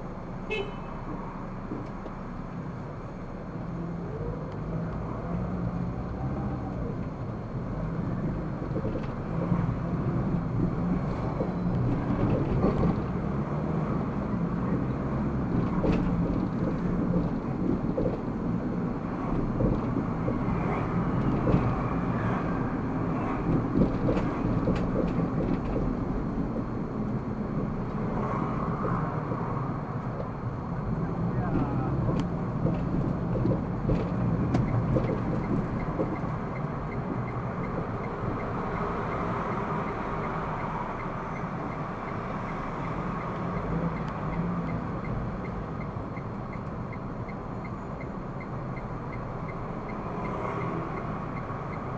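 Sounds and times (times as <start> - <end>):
car engine and tyre noise: 0.0 - 51.9.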